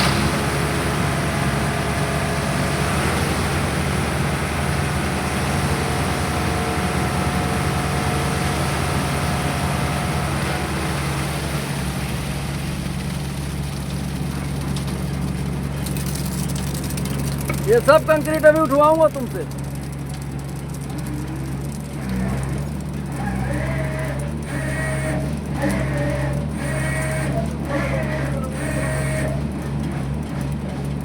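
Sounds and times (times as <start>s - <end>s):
concrete mixer engine humming: 0.0s - 31.0s.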